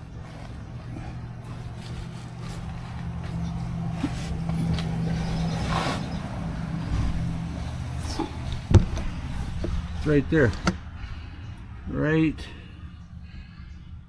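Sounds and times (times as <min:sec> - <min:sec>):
low engine hum: 0:00.0 - 0:14.0
short rustle: 0:00.2 - 0:07.2.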